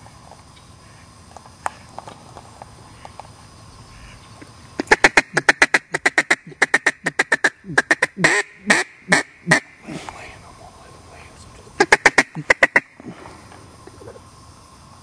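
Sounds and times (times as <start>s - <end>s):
duck quacking: 4.8s - 9.8s, 11.8s - 13.0s.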